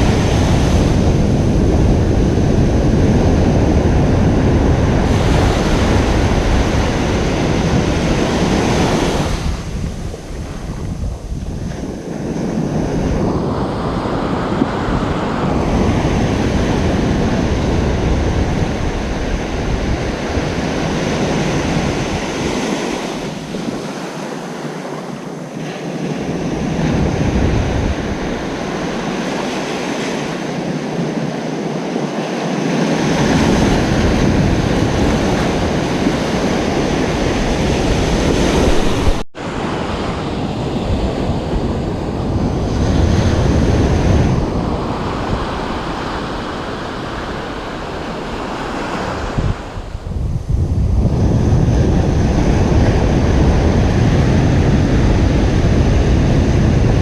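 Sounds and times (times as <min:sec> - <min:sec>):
ocean surf breaking: 0:00.0 - 0:57.0
wind rumbling on microphone: 0:00.0 - 0:57.0.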